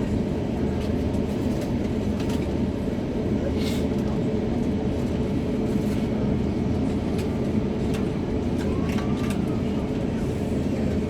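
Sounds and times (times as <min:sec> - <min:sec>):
jet engines roaring at takeoff: 0:04.3 - 0:11.0.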